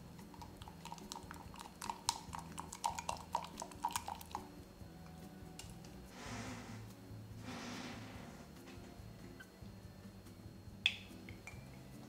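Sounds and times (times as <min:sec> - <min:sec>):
chewing with mouth clicks: 0:00.3 - 0:04.2.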